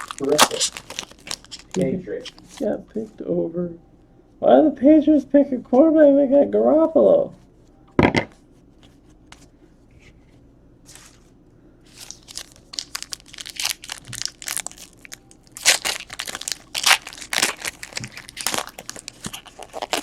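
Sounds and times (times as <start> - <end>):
card pack wrappers tearing and crinkling: 0.0 - 2.7, 11.9 - 20.0.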